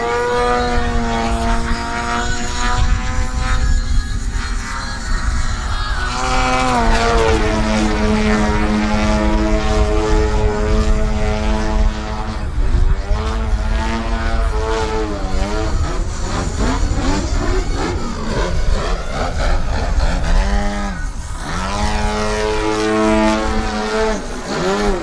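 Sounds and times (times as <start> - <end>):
model plane engine and propeller: 0.0 - 25.0
low rumble: 0.5 - 25.0.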